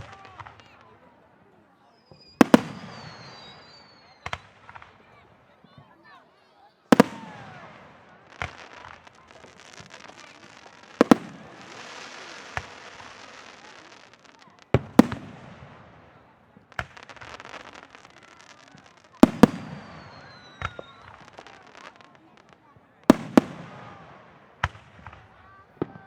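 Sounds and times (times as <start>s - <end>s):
firework crackling: 0.0s - 1.1s, 2.1s - 5.1s, 6.9s - 26.0s
firework shells bursting: 6.9s - 16.0s.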